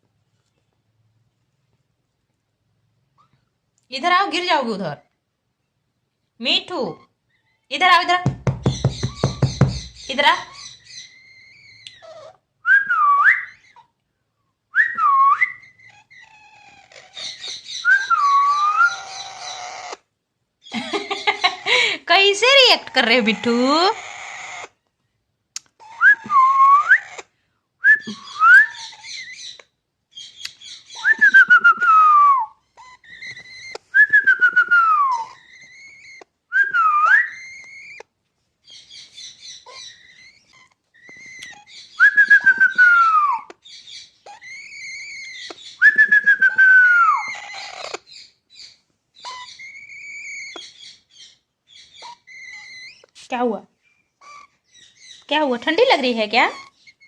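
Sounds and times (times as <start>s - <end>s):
parakeet soft chattering: 8.4s - 12.2s, 15.6s - 17.8s, 18.5s - 20.1s, 21.2s - 24.8s, 43.5s - 45.8s, 47.1s - 53.1s
parakeet whistled calls: 14.8s - 20.0s, 25.8s - 27.2s, 28.0s - 29.6s, 30.2s - 38.0s, 38.7s - 53.0s.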